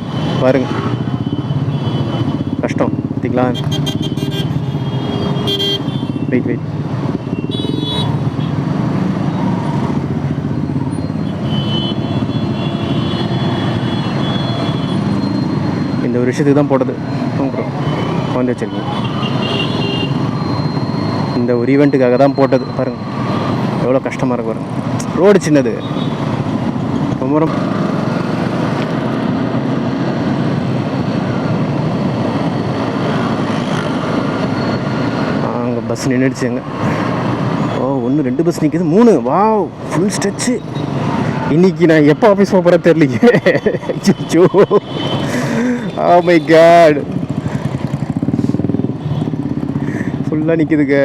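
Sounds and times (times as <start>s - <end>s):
surrounding traffic: 0.0s - 51.0s
motorcycle engine rumbling: 44.2s - 50.6s.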